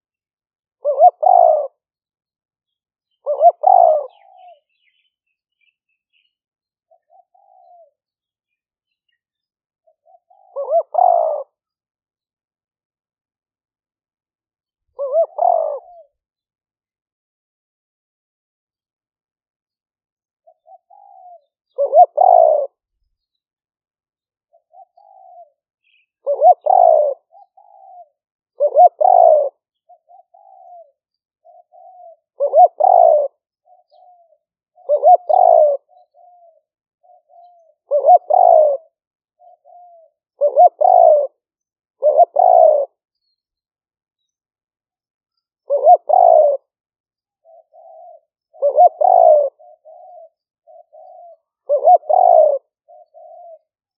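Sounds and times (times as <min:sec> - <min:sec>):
dove cooing: 0:00.8 - 0:01.9, 0:03.2 - 0:06.3, 0:06.9 - 0:08.1, 0:09.1 - 0:11.8, 0:14.9 - 0:16.2, 0:20.4 - 0:22.9, 0:24.5 - 0:41.4, 0:42.0 - 0:43.4, 0:45.6 - 0:46.8, 0:47.4 - 0:53.9.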